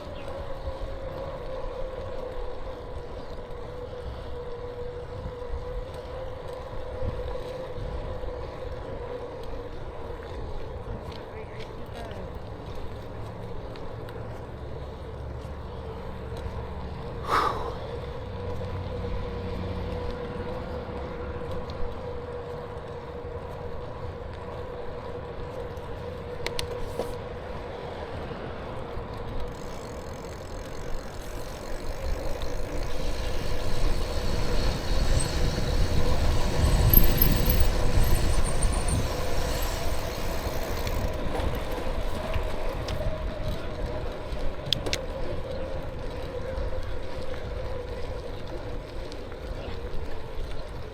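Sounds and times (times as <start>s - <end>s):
bicycle tyres rolling on pavement: 0.0s - 50.9s
wind on microphone: 29.5s - 47.9s.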